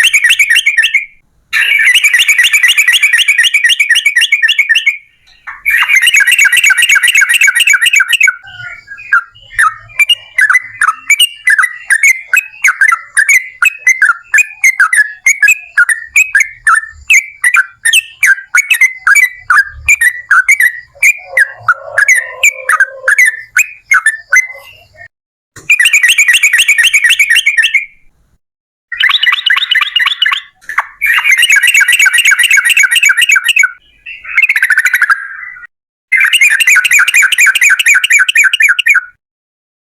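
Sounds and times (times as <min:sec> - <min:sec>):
bird chattering notes: 0:00.0 - 0:25.1, 0:29.0 - 0:35.6
bird singing rapid trills: 0:00.0 - 0:25.1, 0:28.9 - 0:39.2.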